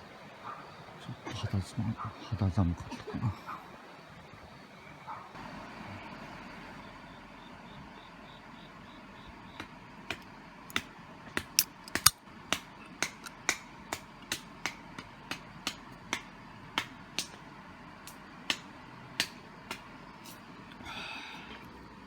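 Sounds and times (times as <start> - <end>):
campfire crackling and popping: 9.6 - 20.4.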